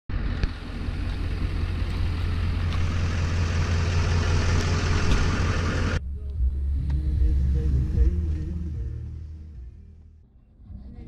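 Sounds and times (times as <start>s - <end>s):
vehicle engine idling: 0.1s - 11.0s.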